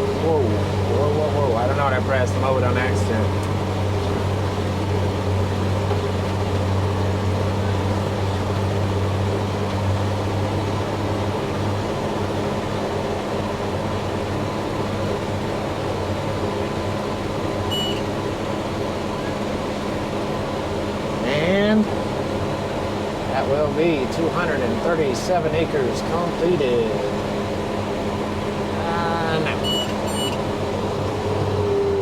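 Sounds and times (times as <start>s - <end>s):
diesel engine droning: 0.0s - 32.0s
short high beep: 17.7s - 18.0s, 29.5s - 30.4s.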